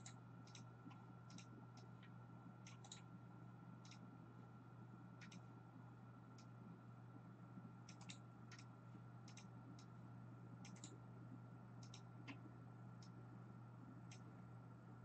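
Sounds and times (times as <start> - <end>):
mouse and keyboard clicks: 0.0 - 1.9, 2.6 - 3.1, 3.8 - 4.0, 5.2 - 5.5, 7.9 - 8.7, 9.3 - 9.9, 10.6 - 11.0, 11.8 - 13.2
low electrical hum: 0.0 - 15.0.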